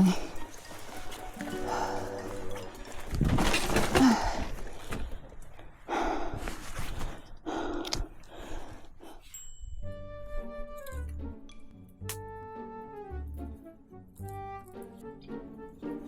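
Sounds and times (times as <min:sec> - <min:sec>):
person breathing hard: 0:03.8 - 0:09.4.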